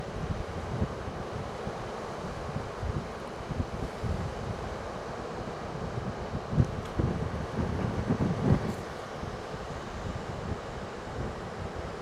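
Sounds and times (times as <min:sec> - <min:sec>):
wind buffeting microphone: 0:06.0 - 0:08.8.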